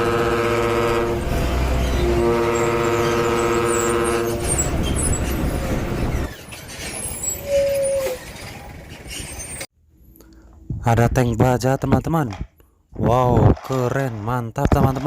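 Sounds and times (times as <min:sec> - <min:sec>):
vehicle horn chord: 0:00.0 - 0:04.8
low vehicle engine noise: 0:00.0 - 0:07.4.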